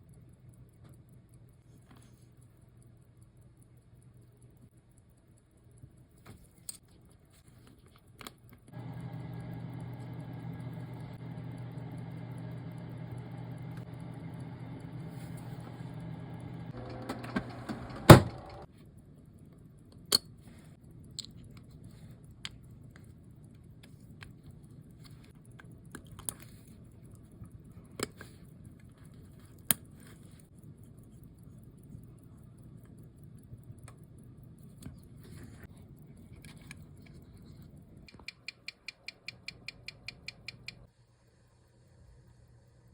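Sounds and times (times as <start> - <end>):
motor switching off click: 8.7 - 18.7.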